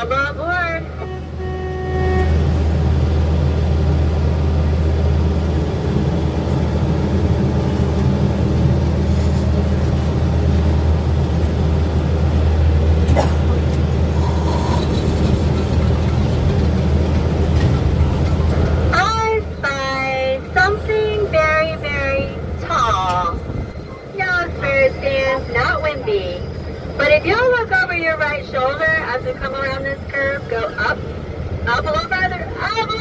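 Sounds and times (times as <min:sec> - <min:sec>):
miniature train engine droning: 0:13.7 - 0:33.0.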